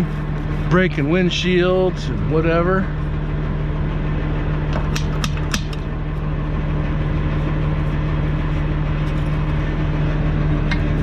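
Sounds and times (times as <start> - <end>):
diesel truck engine idling: 0.0 - 4.8.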